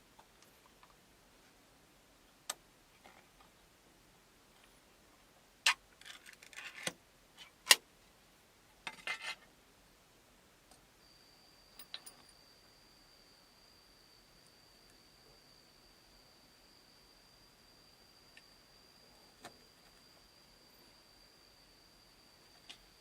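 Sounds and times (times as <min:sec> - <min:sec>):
rustling and scraping: 0:08.9 - 0:09.4
thin high tone: 0:11.0 - 0:23.0.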